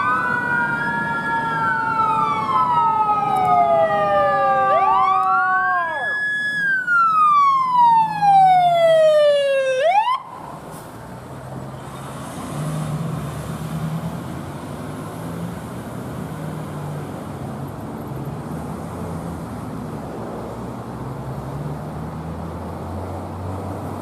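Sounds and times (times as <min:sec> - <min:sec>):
electronic siren sweeping: 0:00.0 - 0:10.4.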